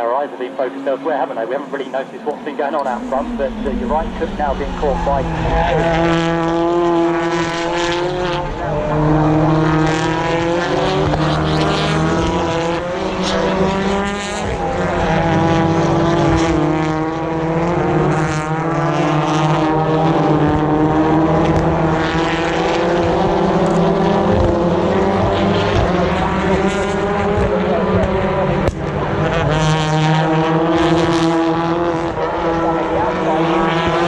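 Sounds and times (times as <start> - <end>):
race car engines at high revs: 0.0 - 34.0.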